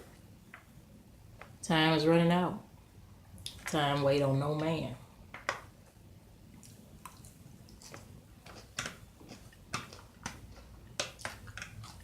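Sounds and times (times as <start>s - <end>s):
person chewing food: 5.8s - 12.0s.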